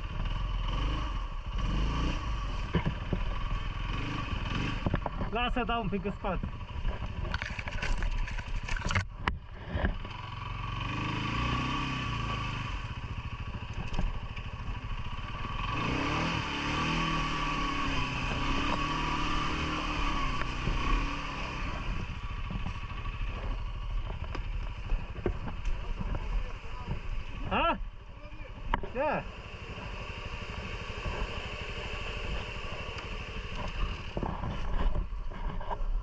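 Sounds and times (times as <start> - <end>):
atv engine revving: 0.0 - 35.9.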